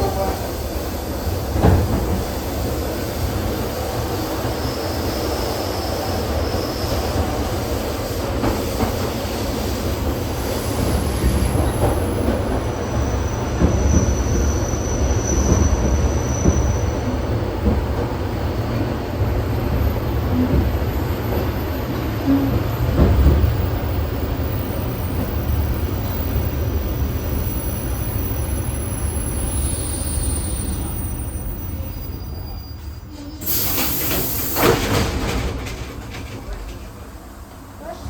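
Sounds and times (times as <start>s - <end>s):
train wheels rumbling on rails: 0.0s - 38.0s
high wheel squeals: 3.7s - 8.0s, 24.3s - 34.4s.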